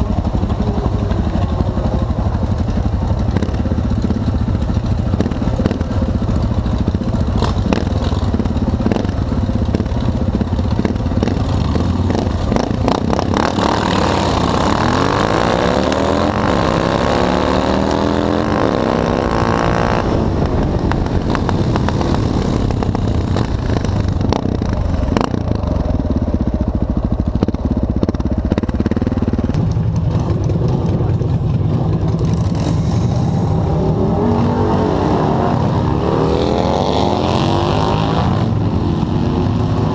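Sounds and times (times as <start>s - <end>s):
motorcycle engine idling: 0.0s - 13.4s, 20.4s - 32.7s
motorcycle accelerating through gears: 0.0s - 39.9s.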